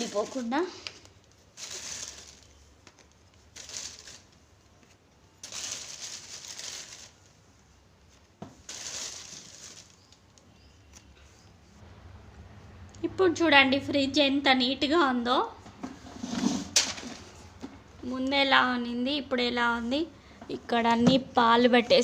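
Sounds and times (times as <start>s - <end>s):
rustling and crinkling: 0.0s - 11.8s.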